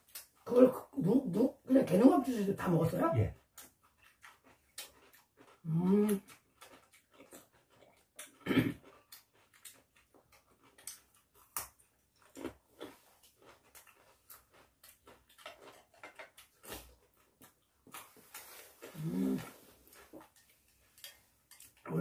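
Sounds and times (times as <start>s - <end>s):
people chewing crunchy vegetables: 0.0s - 22.0s
hum-like mouth sound: 18.9s - 19.7s.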